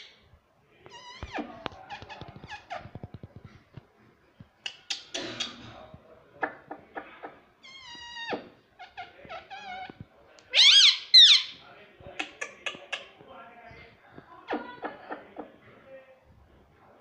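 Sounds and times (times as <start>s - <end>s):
parrot chattering and calling: 4.6s - 5.8s, 6.4s - 11.6s, 12.2s - 13.1s
parrot screeching: 10.5s - 11.6s.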